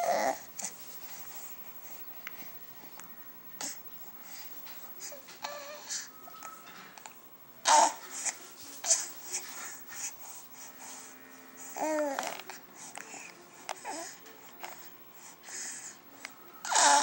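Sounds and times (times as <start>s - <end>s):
baby cooing and babbling: 0.0s - 0.6s, 5.0s - 6.2s, 7.6s - 9.1s, 11.6s - 14.8s, 16.6s - 17.0s.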